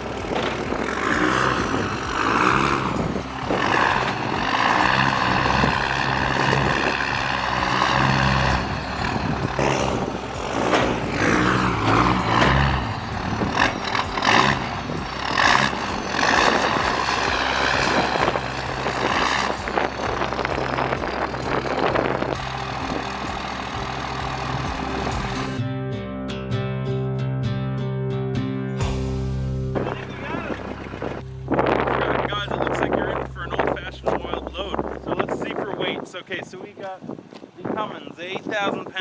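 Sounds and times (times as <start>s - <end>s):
diesel engine running: 0.0s - 25.6s, 28.8s - 36.4s
high wavering whine: 0.0s - 25.6s.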